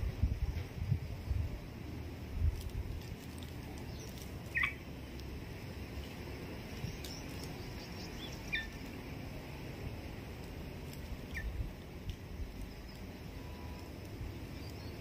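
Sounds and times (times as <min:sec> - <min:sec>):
bird chirps: 0:03.9 - 0:04.8, 0:06.8 - 0:08.9.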